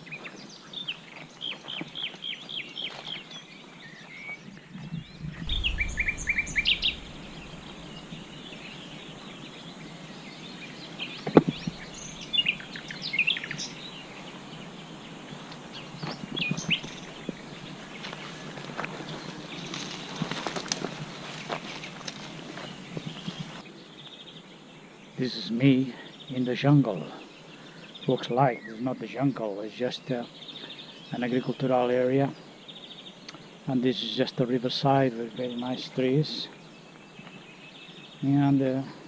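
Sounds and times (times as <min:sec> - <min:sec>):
small birds singing: 0:00.0 - 0:39.0
low rumble: 0:04.8 - 0:09.9, 0:11.4 - 0:13.0
sharp knock: 0:05.2 - 0:09.1.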